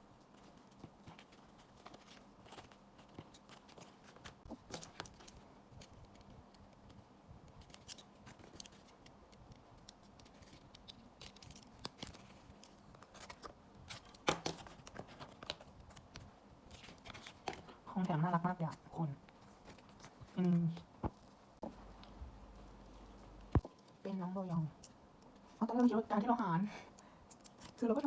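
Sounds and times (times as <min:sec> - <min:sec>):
packaging clicks and rustles: 0:00.2 - 0:17.8.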